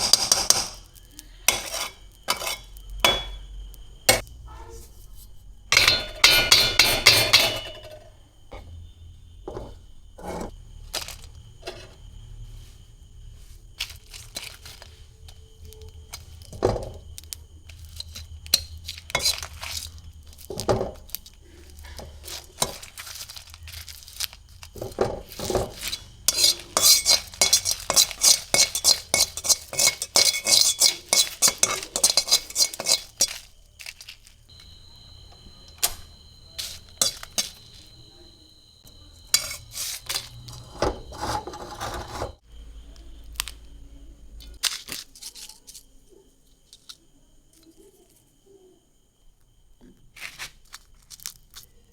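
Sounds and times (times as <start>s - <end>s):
utensils clinking against dishes: 1.5s - 3.5s, 5.7s - 8.7s, 17.8s - 24.0s, 24.8s - 34.2s, 35.7s - 38.0s, 39.2s - 42.4s.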